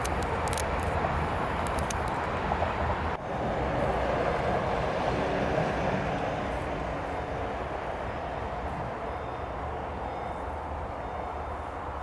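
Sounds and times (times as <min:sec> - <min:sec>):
electric locomotive approaching: 0:00.0 - 0:12.0
electric train rumbling: 0:00.0 - 0:12.0.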